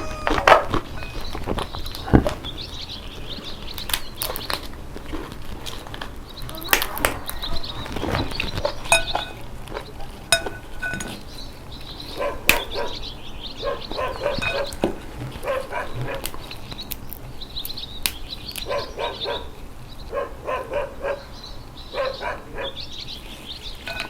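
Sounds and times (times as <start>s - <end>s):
eating sounds: 0.0s - 22.9s
crab shells cracking: 0.2s - 13.0s, 14.6s - 18.7s.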